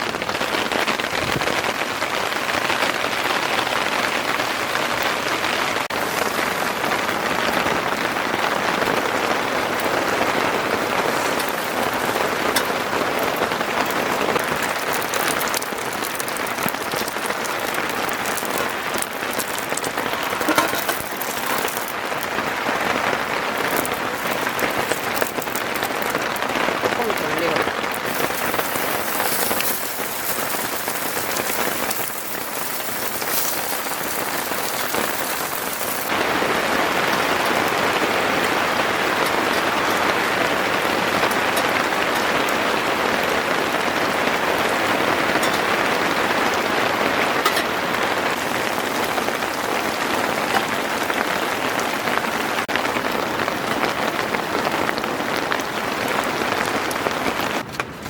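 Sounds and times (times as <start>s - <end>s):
heavy rain falling: 0.0s - 58.0s
raindrop hits: 5.9s - 38.2s, 44.7s - 57.8s.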